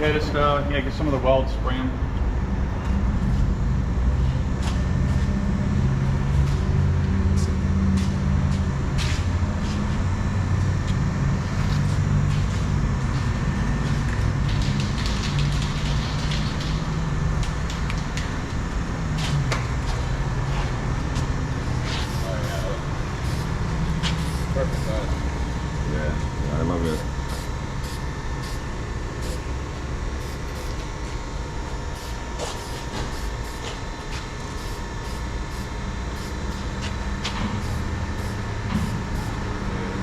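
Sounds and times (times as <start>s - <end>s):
engine idling: 19.6s - 40.0s.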